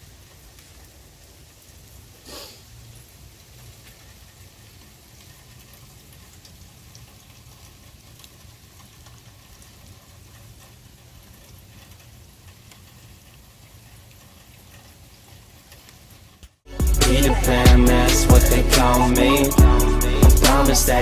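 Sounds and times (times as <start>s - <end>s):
rain pattering: 0.0s - 21.0s.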